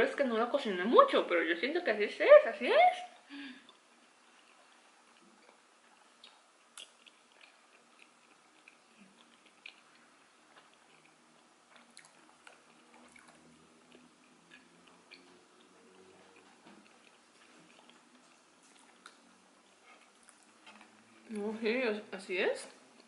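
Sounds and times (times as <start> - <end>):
chewing soft rice cakes: 3.4 - 21.6, 22.6 - 23.0
wet mouth smacks and clicks: 6.2 - 10.0.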